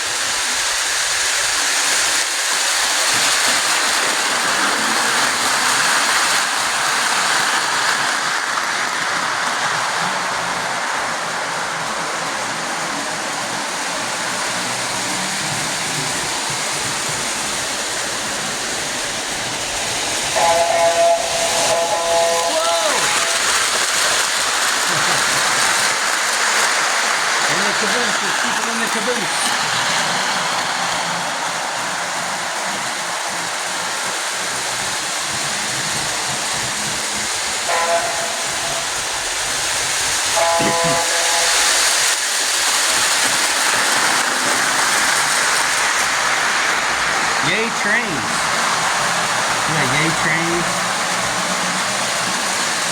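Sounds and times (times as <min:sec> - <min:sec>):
toy train rushing hiss: 0:00.0 - 0:52.9
toy train whistle chord: 0:20.4 - 0:23.5, 0:37.7 - 0:39.0, 0:40.4 - 0:41.9.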